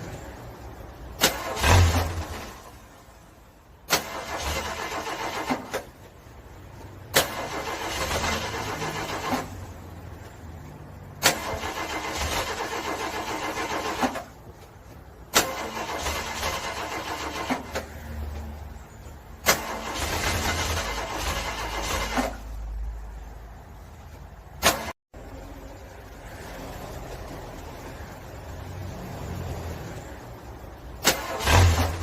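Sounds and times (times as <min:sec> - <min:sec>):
car engine cranking: 0:00.0 - 0:10.4, 0:11.0 - 0:18.1, 0:19.0 - 0:25.0, 0:31.0 - 0:32.0.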